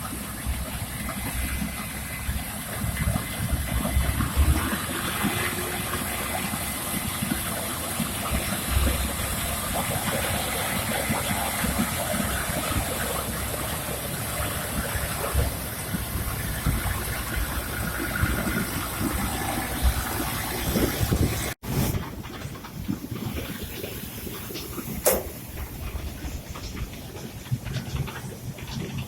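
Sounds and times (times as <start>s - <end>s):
combine harvester running: 0.0s - 29.0s.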